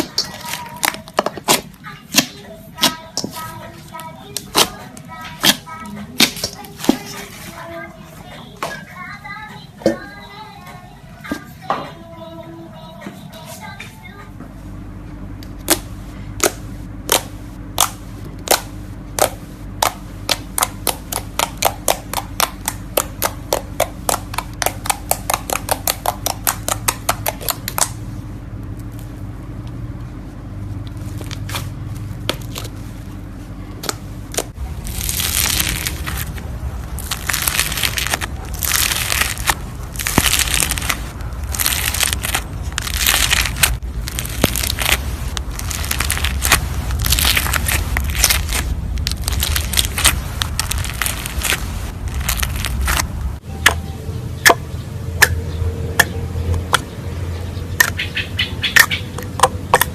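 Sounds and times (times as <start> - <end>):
crunchy crackling slime squishing: 0.0 - 7.7, 15.6 - 28.0, 30.7 - 53.8
slime popping: 16.4 - 27.9, 33.8 - 36.4, 37.0 - 53.1.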